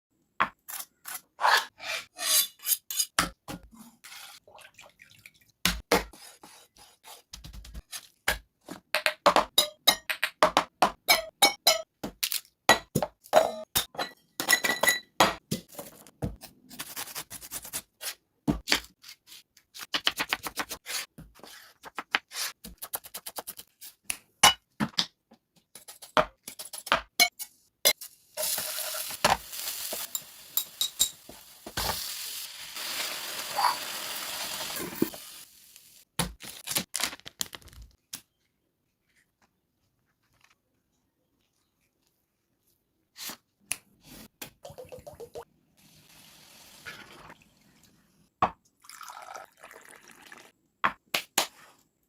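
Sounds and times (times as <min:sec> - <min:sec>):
utensils clinking against dishes: 0:30.0 - 0:31.2.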